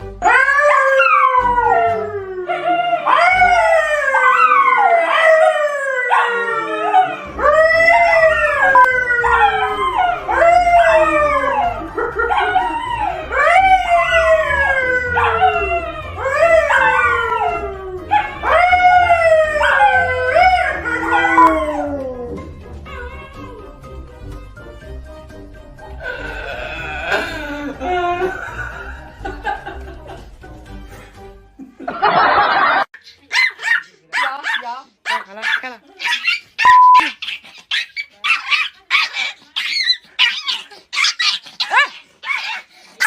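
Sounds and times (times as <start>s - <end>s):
dog howling: 0.2s - 23.8s.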